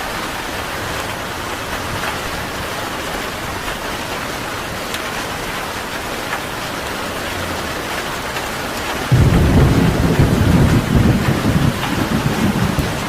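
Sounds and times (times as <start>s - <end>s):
steady rain falling: 0.0s - 13.0s
thunder rumbling: 9.0s - 13.0s.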